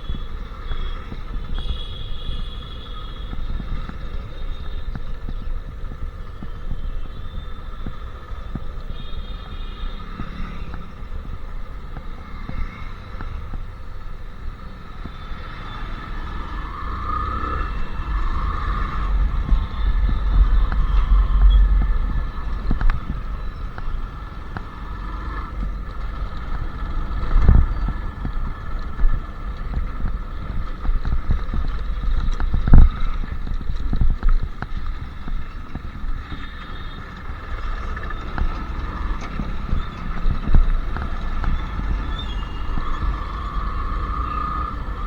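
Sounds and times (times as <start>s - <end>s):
motorcycle engine running: 14.6s - 45.0s.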